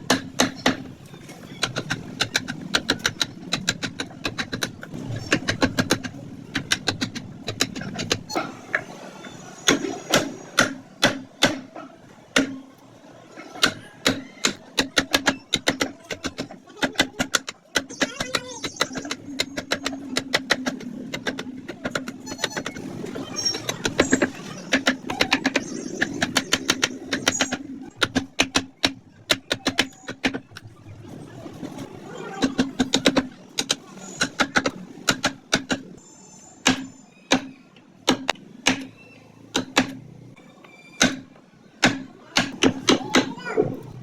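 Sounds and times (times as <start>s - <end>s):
mallet tapping chisel into wood: 12.4s - 12.6s.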